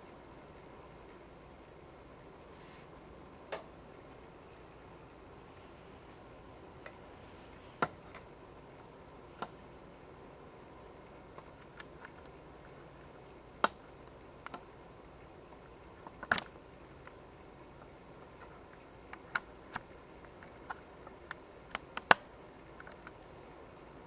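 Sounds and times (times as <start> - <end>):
faint steady hiss: 0.0 - 24.0
light clicks and taps: 17.8 - 23.2.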